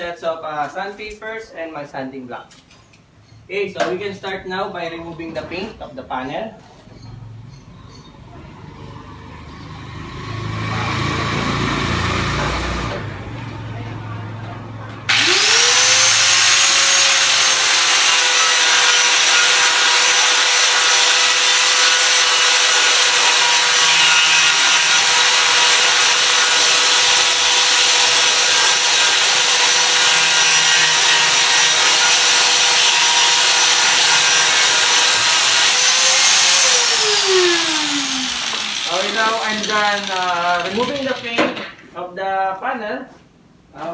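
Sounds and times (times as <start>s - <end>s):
grinder whining on metal panel: 15.1s - 41.4s.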